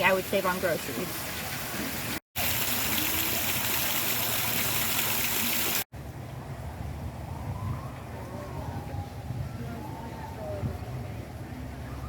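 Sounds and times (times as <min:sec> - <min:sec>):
rushing water: 0:00.0 - 0:05.9.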